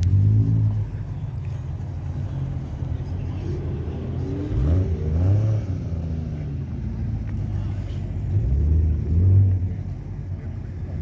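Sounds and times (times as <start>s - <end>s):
car engine revving: 3.9s - 6.4s.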